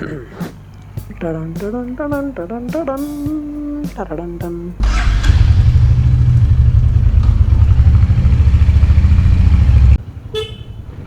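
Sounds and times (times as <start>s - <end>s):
vehicle engine rumbling: 4.7s - 11.0s.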